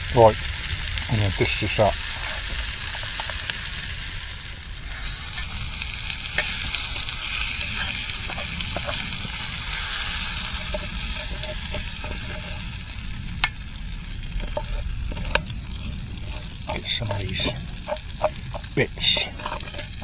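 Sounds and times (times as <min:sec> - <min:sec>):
chicken sizzling in a pan: 0:00.0 - 0:20.0
utensil clicking against pan: 0:14.4 - 0:20.0.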